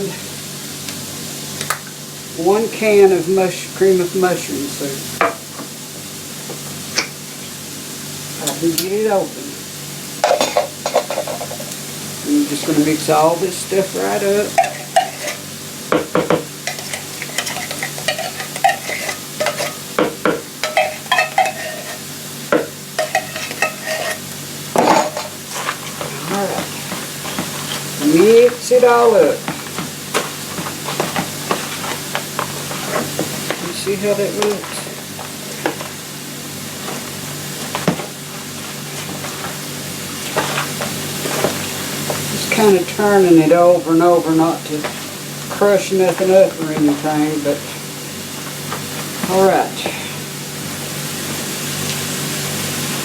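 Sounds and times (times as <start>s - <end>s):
food sizzling in a pan: 0.0s - 53.0s
spoon stirring mixture in bowl: 14.2s - 35.9s
spoon scraping a bowl: 14.6s - 15.5s, 16.7s - 19.8s, 20.6s - 22.1s, 23.0s - 27.9s.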